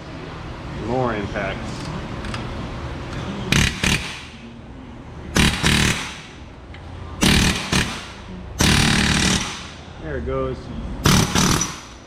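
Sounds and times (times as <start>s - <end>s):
impact driver hammering: 3.5s - 4.4s, 5.4s - 6.4s, 7.2s - 9.8s, 11.0s - 12.0s.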